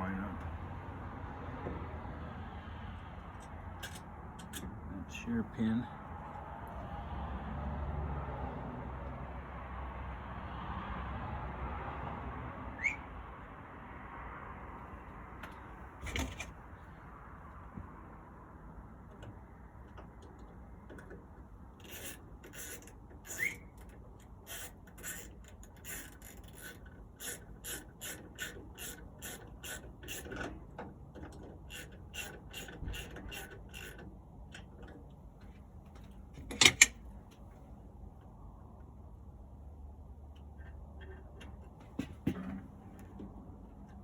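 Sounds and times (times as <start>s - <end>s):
metal parts knocking: 36.4s - 37.0s.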